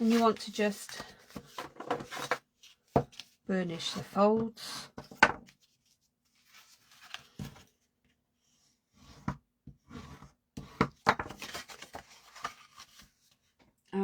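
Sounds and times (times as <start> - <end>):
paper rustling: 11.2 - 13.4.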